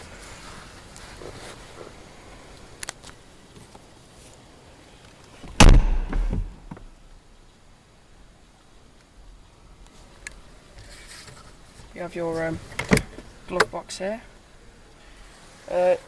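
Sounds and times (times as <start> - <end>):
car door shutting thud: 5.4 - 6.9.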